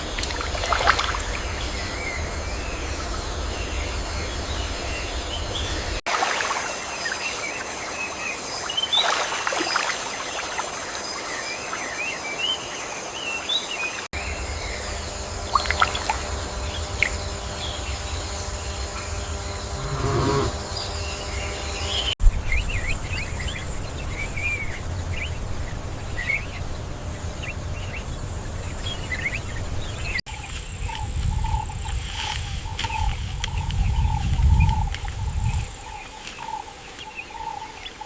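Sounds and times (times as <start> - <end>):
insect drone: 0.0 - 38.0
birds chirping: 6.6 - 38.0
low rumble: 14.2 - 30.2
pulsing mid-pitched call: 19.7 - 20.6
rising animal call: 19.7 - 20.7.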